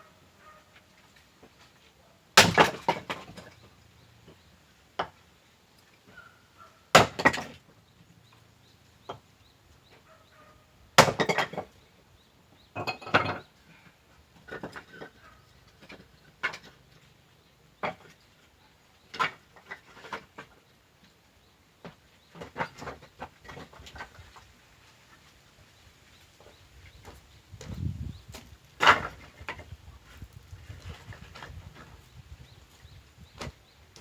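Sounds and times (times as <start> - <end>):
firewood knocking and clattering: 2.4 - 3.6, 11.0 - 11.8, 14.3 - 17.1, 19.0 - 20.6, 21.8 - 24.4, 26.4 - 32.2.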